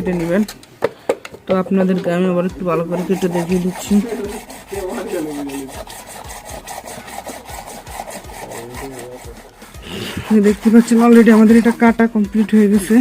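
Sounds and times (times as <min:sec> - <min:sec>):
hand saw cutting plastic pipe: 0:00.0 - 0:00.6, 0:02.5 - 0:13.0.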